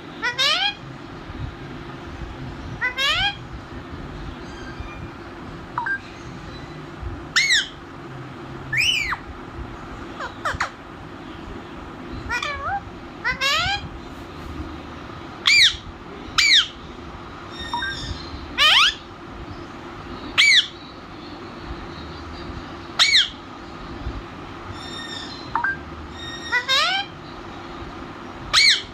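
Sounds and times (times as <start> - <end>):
parrot squawking: 0.2 - 0.8, 2.8 - 3.4, 7.3 - 7.8, 8.7 - 9.2, 10.1 - 10.8, 12.3 - 13.9, 15.4 - 16.8, 17.5 - 19.1, 20.4 - 20.8, 23.0 - 23.4, 24.7 - 27.2, 28.5 - 28.9.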